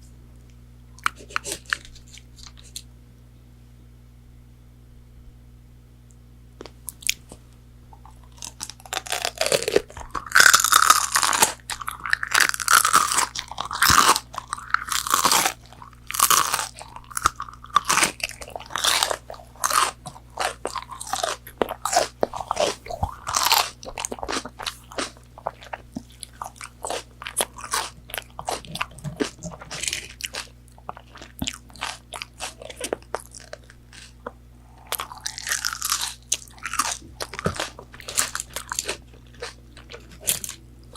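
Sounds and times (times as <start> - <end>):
crunchy chewing: 0.4 - 2.9, 6.6 - 40.9.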